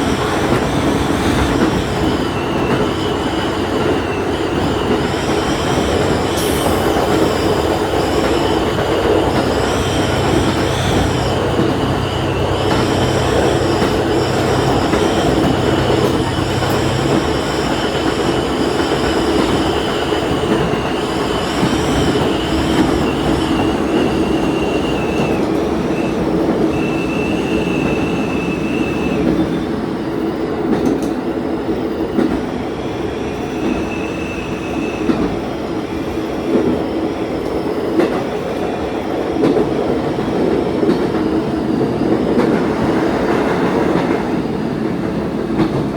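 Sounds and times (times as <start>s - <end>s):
train wheels rumbling on rail: 0.0s - 45.9s
high wheel squeal: 0.7s - 29.8s.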